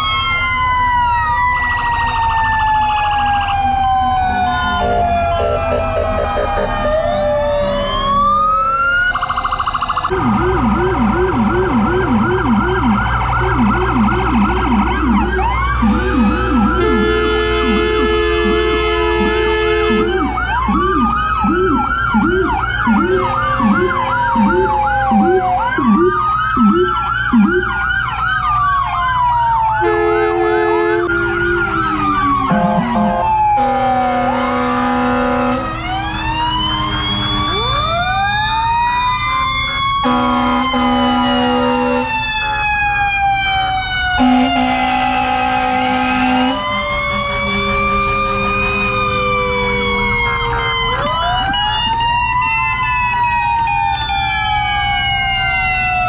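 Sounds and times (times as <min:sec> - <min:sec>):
fast siren yelp: 0:00.0 - 0:56.0
wailing sirens: 0:00.0 - 0:56.0
vehicle horn blasts: 0:15.9 - 0:20.2, 0:29.8 - 0:31.4, 0:32.6 - 0:35.7, 0:40.0 - 0:42.1, 0:44.2 - 0:46.6.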